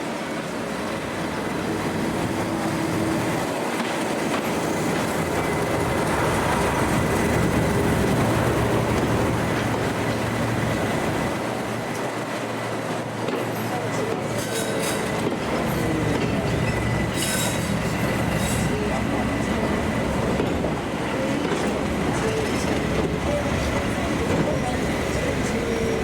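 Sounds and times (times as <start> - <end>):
diesel locomotive engine running: 0.0 - 26.0
train wheels rolling on track: 0.0 - 26.0.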